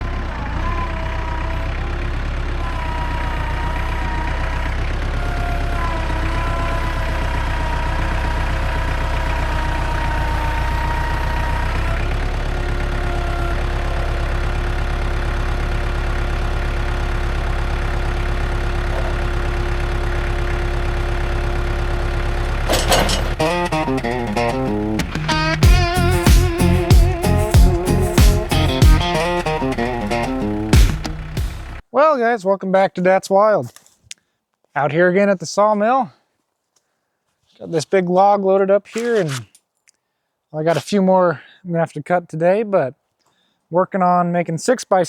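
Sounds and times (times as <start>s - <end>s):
sawmill engine running with whine: 0.0s - 31.8s.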